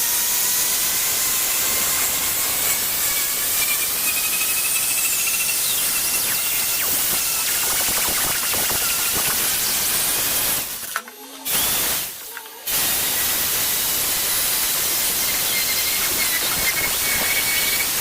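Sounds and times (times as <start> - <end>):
static hiss: 6.3 - 18.0.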